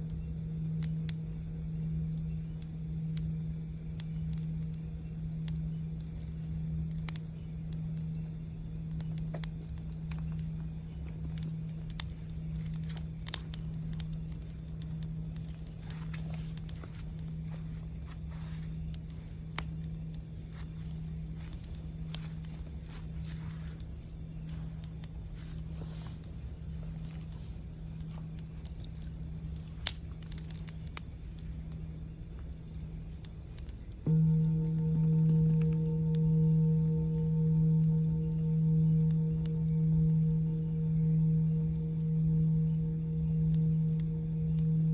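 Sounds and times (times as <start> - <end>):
campfire crackling and popping: 0.0 - 44.9
singing bowl humming: 0.0 - 44.9
singing bowl ringing: 34.0 - 44.9.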